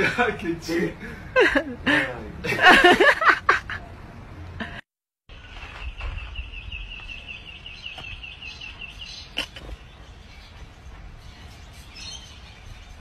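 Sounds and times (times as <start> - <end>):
person laughing: 1.3 - 3.9, 9.4 - 9.7
bird chirping rapidly: 5.3 - 13.0.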